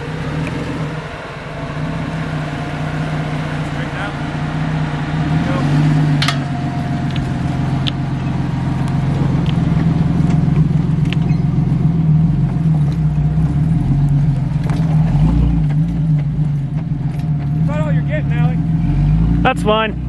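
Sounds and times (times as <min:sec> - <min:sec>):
car engine running: 0:00.0 - 0:20.0
clicks and creaks: 0:10.2 - 0:11.6.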